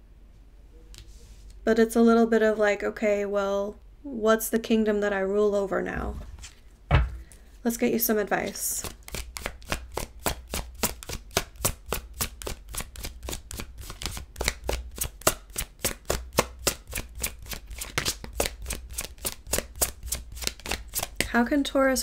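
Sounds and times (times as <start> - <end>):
cards being shuffled: 8.4 - 21.2.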